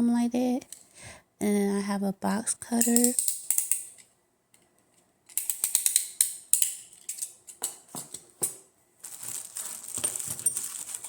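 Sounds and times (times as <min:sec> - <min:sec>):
hand tools clicking and clattering: 0:02.8 - 0:04.7, 0:05.3 - 0:08.6, 0:09.6 - 0:11.0
rustling: 0:09.0 - 0:11.0.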